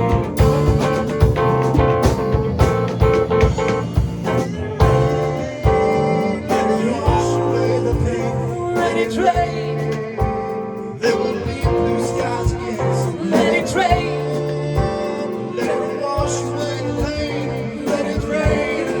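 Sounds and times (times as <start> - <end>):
guitar playing: 0.0 - 8.2
drum kit beat: 0.0 - 19.0.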